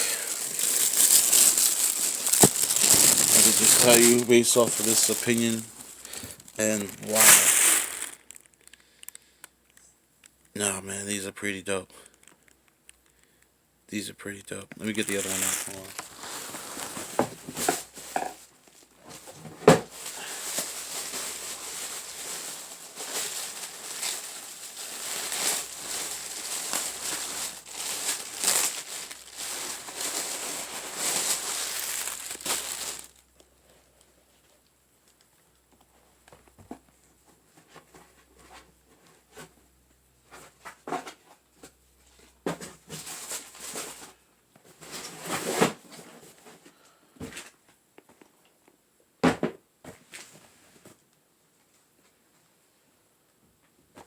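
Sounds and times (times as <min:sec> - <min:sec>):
packaging crinkling and rustling: 0:00.0 - 0:09.2, 0:14.8 - 0:33.4, 0:42.7 - 0:46.5.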